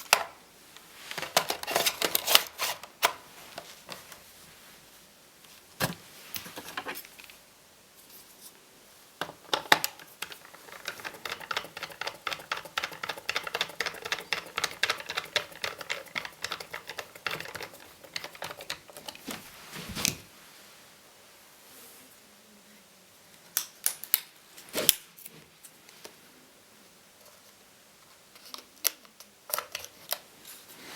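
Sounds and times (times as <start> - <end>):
plastic and metal clicks: 9.5 - 19.2.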